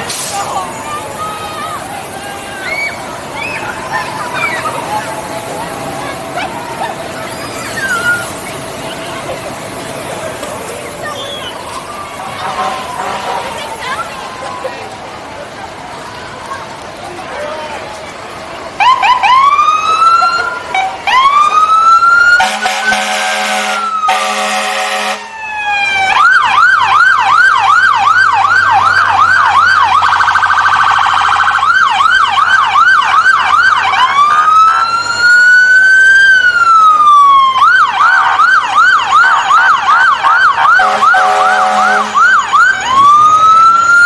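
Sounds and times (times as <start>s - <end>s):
fire truck siren wailing and yelping: 0.0s - 16.9s, 18.2s - 44.0s
deep horn blasts: 22.4s - 25.3s, 40.8s - 42.2s.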